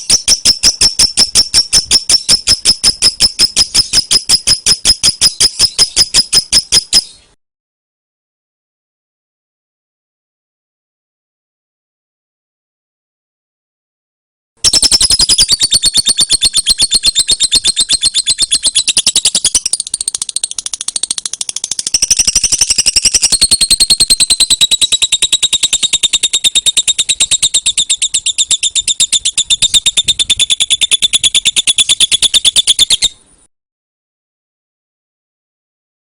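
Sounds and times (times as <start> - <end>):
bird chattering trill: 0.0 - 7.2, 14.6 - 33.2.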